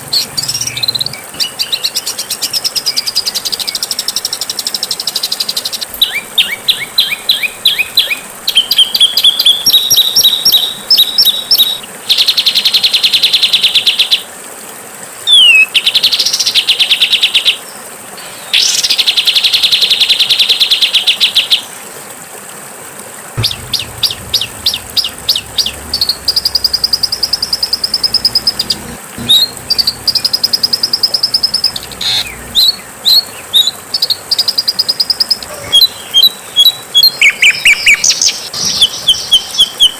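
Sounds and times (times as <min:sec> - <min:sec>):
songbirds singing: 0:00.0 - 0:12.8, 0:23.4 - 0:39.9
faint high whine: 0:23.4 - 0:33.4.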